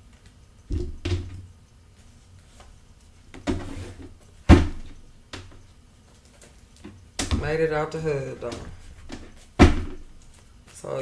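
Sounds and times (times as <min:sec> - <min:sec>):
thumps and knocks on a tabletop: 0:00.7 - 0:01.4.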